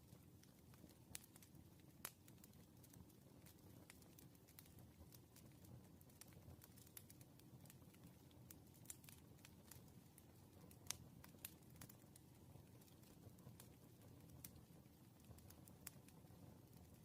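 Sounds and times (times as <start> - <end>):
low fire rumble: 0.0 - 17.0
wood fire crackling: 0.0 - 17.0.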